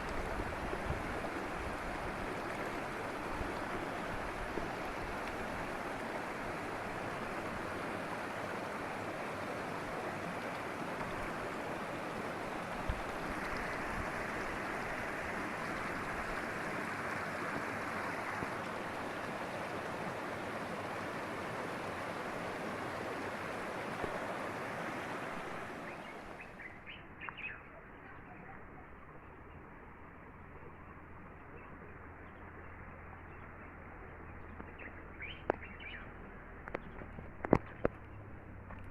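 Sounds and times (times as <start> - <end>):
river water rushing: 0.0 - 28.0
bird chirps: 25.9 - 29.6, 30.7 - 36.2.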